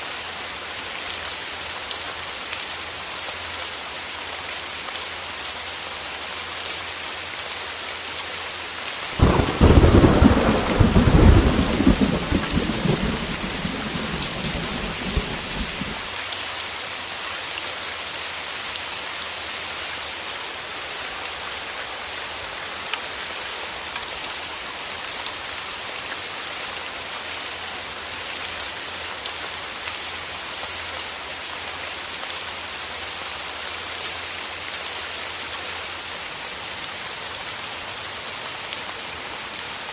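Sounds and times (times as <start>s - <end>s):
heavy rain falling: 0.1s - 39.9s
thunder rumbling: 9.2s - 16.1s.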